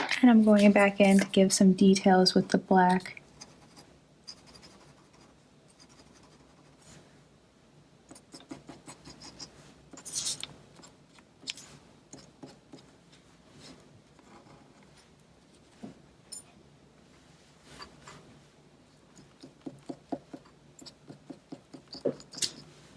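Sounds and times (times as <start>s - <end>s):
pen scratching on paper: 3.3s - 7.0s, 8.1s - 11.0s, 12.1s - 13.0s, 19.2s - 22.4s.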